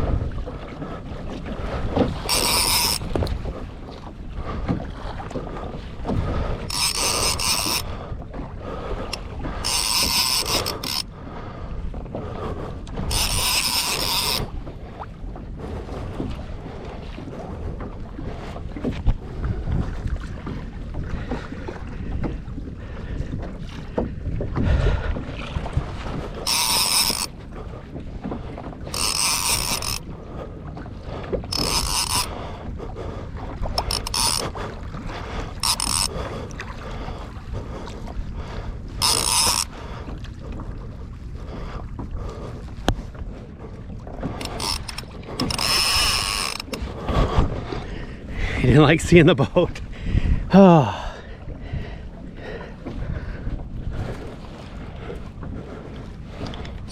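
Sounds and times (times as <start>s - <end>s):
water lapping against kayak: 0.0s - 56.9s
wind on microphone: 0.0s - 56.9s
fishing reel buzzing: 2.2s - 3.3s, 6.6s - 8.0s, 9.1s - 11.1s, 13.0s - 14.5s, 26.4s - 27.3s, 28.9s - 30.1s, 31.5s - 32.3s, 33.8s - 34.6s, 35.5s - 36.2s, 39.0s - 39.7s, 44.4s - 46.8s.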